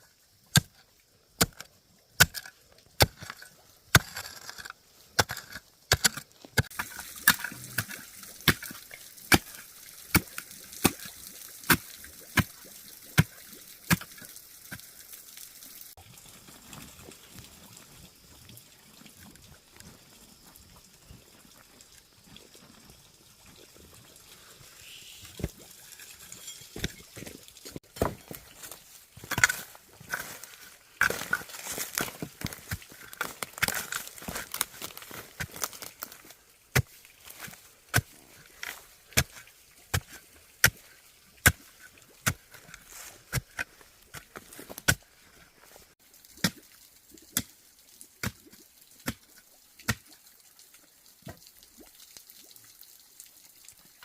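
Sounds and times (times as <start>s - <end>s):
blade chopping wood: 0.5s - 0.8s, 1.4s - 12.6s, 27.8s - 28.3s, 31.0s - 36.1s.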